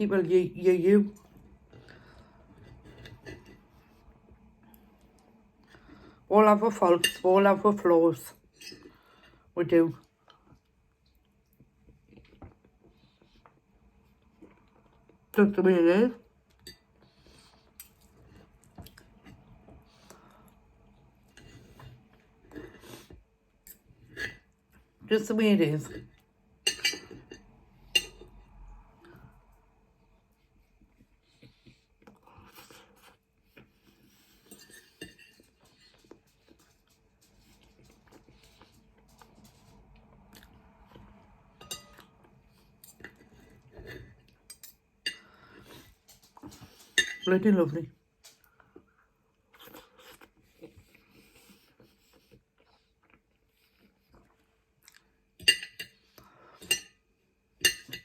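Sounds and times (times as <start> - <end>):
cutlery clinking on a plate: 26.6 - 28.3, 34.4 - 36.0, 41.6 - 42.1, 46.2 - 47.3, 55.4 - 56.0, 56.6 - 57.0, 57.6 - 58.0.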